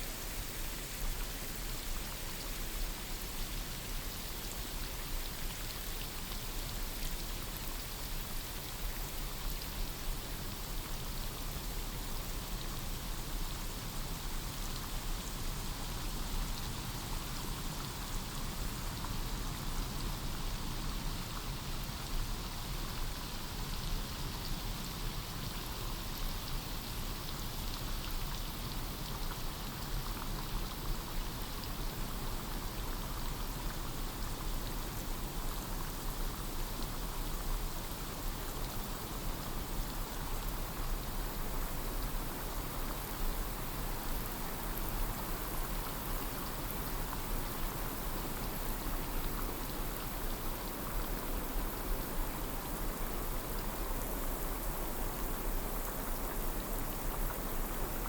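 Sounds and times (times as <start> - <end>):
rain on foliage: 14.2 - 58.0.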